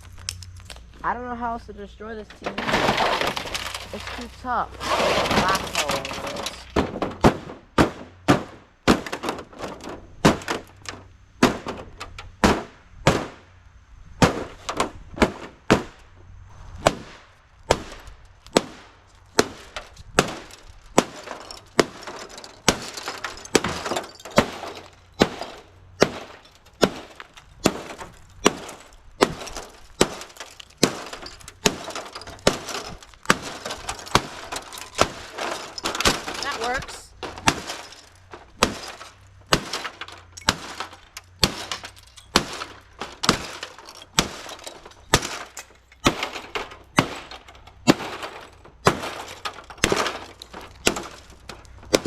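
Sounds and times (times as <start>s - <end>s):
glass cracking and breaking: 2.2s - 7.6s, 17.9s - 52.0s.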